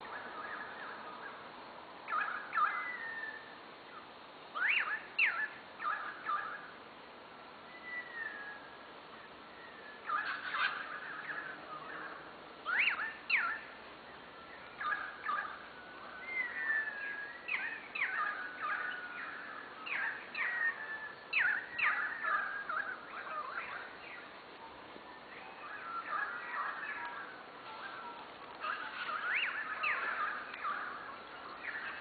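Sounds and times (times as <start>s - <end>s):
birds singing and calling: 0.0s - 6.8s, 7.6s - 32.0s.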